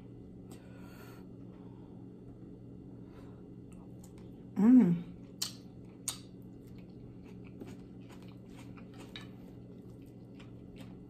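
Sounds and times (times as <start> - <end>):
faint steady hum: 0.0 - 11.0
chewing and wet mouth noises: 5.1 - 11.0.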